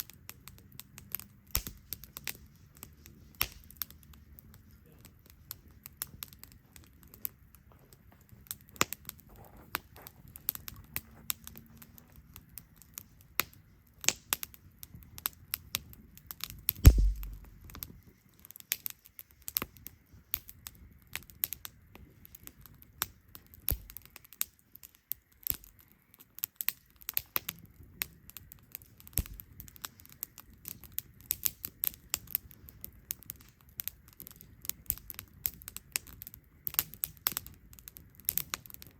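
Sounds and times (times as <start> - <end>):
campfire crackling and popping: 0.0 - 38.9
dull thump: 16.8 - 17.6.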